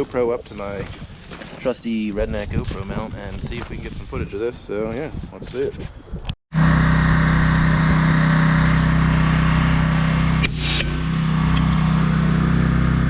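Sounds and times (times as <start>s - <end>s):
pressure washer engine running: 6.6s - 13.0s
hiss of sandblasting spray: 10.4s - 10.9s.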